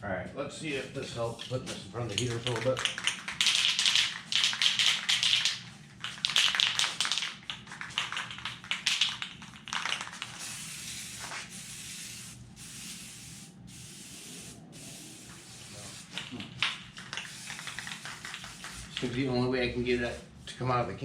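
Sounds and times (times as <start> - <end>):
aerosol can spraying: 10.0 - 16.4, 17.0 - 19.1.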